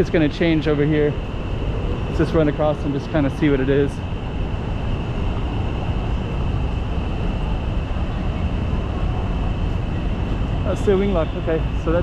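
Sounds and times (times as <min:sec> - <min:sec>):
city street rumble: 0:00.0 - 0:12.0.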